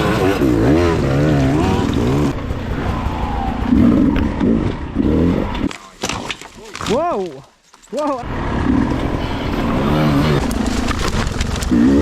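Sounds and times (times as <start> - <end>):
dirt bike engine revving: 0.0 - 5.7, 8.2 - 12.0.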